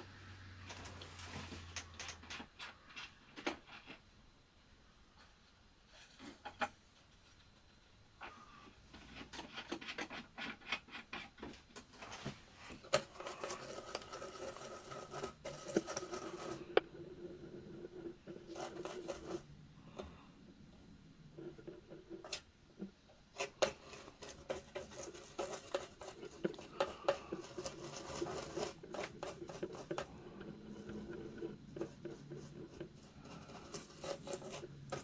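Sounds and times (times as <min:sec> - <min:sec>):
small tools scratching and clicking: 0:00.7 - 0:04.0, 0:05.2 - 0:16.8, 0:23.3 - 0:35.0.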